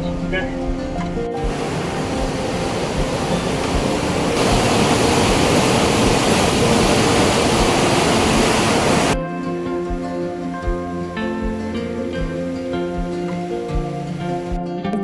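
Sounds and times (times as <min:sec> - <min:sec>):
water rushing through valves: 0:00.0 - 0:09.2.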